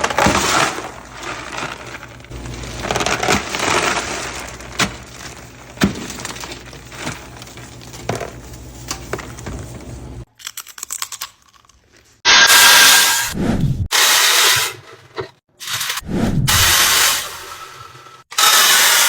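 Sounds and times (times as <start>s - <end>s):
candy pieces clattering and crackling: 0.0s - 9.2s, 10.3s - 12.2s.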